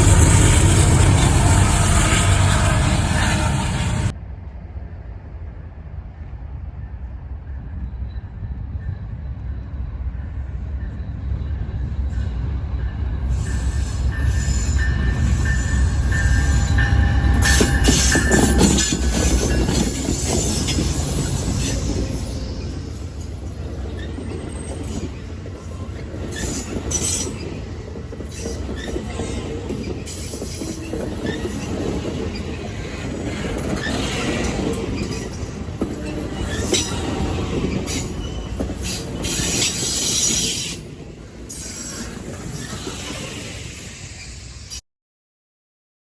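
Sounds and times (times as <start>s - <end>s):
train rolling past: 0.0s - 44.8s.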